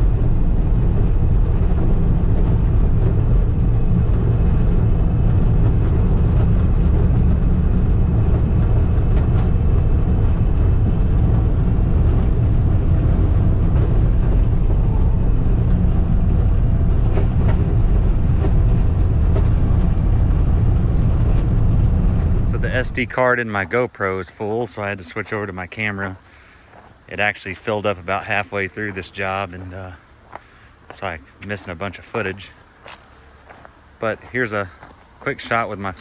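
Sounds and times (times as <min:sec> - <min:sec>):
skid steer engine running: 0:00.0 - 0:24.6.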